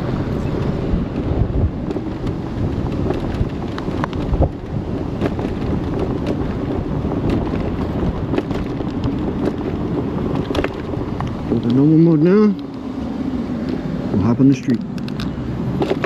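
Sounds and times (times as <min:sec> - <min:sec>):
wind buffeting microphone: 0:00.0 - 0:16.0
small clicks and knocks: 0:07.2 - 0:11.8, 0:14.8 - 0:16.0.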